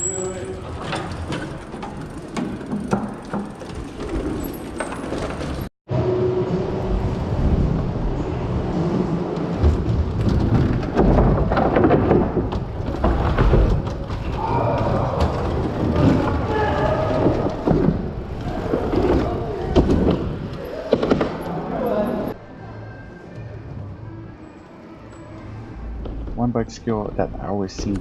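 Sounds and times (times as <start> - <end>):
bike tyre and frame rumbling: 0.0 - 5.7, 6.6 - 22.0.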